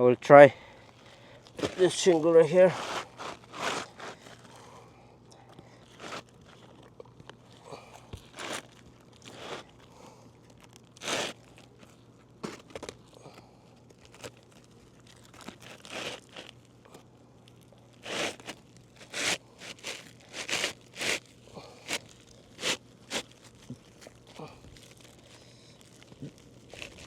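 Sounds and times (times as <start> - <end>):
shingle scraping and crinkling: 0.6 - 16.8, 17.6 - 27.0.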